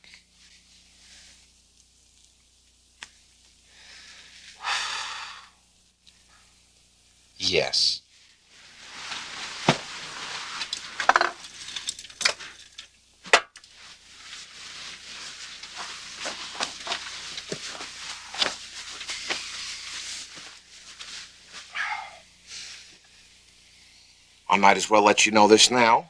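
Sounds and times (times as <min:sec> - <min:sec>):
rustling: 0:08.1 - 0:23.7.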